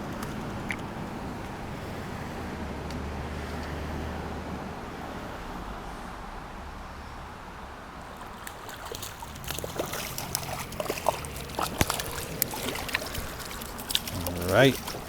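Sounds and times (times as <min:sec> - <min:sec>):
flowing river water: 0:00.0 - 0:06.6, 0:07.3 - 0:15.0
water splashing and dripping: 0:08.0 - 0:15.0.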